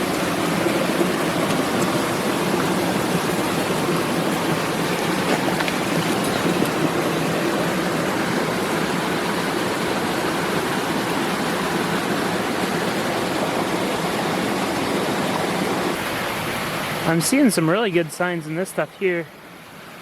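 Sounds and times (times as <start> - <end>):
mountain stream rushing: 0.0 - 20.0.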